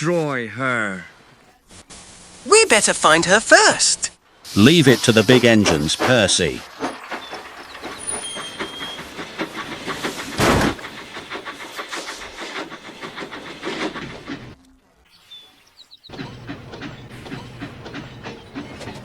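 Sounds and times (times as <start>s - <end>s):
steam hissing: 4.5s - 14.6s
steam locomotive puffing: 4.5s - 14.6s, 16.1s - 19.0s
train wheels clattering: 5.4s - 14.6s, 16.1s - 19.0s.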